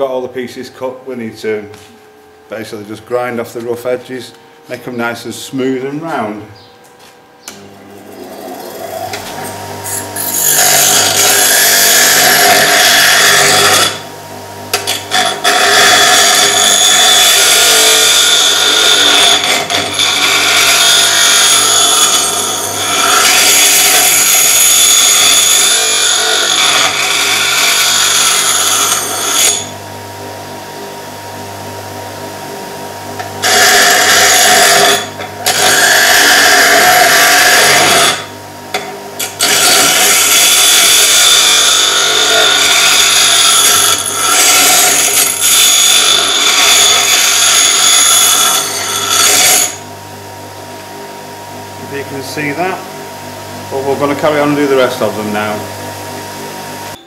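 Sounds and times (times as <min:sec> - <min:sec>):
grinder motor humming: 0:01.2 - 0:57.0
grinder grinding steel: 0:07.0 - 0:14.1, 0:14.7 - 0:29.8, 0:33.2 - 0:49.9.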